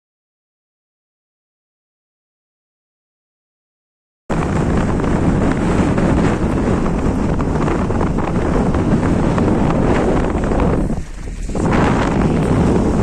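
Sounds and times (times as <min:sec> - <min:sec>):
wind buffeting microphone: 0:04.3 - 0:13.0.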